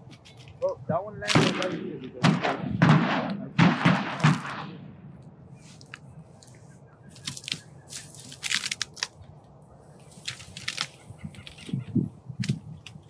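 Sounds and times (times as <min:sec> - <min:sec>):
low outdoor background: 0:00.0 - 0:13.0
crackling handling noise: 0:05.2 - 0:13.0.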